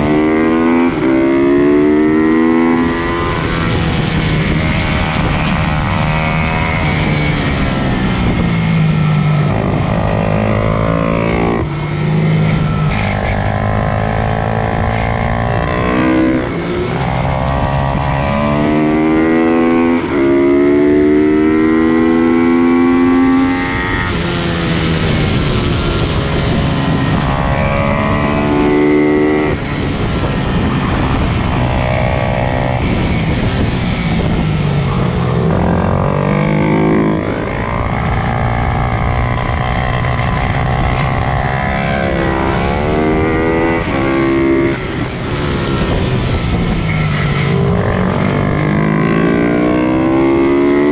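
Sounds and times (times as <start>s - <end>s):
small motorcycles revving hard: 0.0s - 50.9s.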